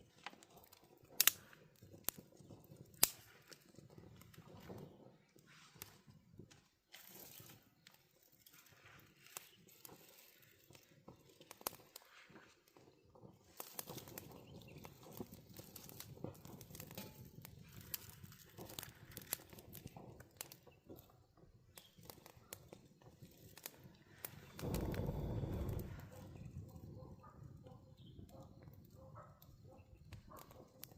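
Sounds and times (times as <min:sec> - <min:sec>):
dry leaves rustling and crackling: 0:08.4 - 0:12.2
rush of noise: 0:24.6 - 0:26.2.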